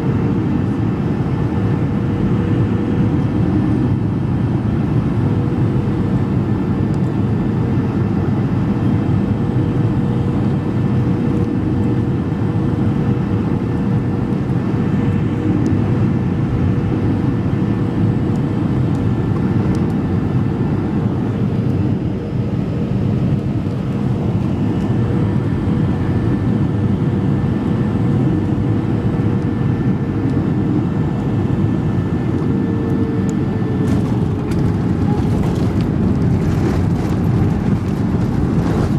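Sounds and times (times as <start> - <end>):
jet engines and airflow rushing: 0.0 - 38.9.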